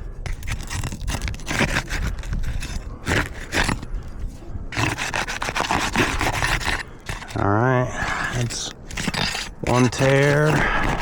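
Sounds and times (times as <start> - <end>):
shingles scraping and crackling: 0.2 - 4.1, 4.7 - 11.0.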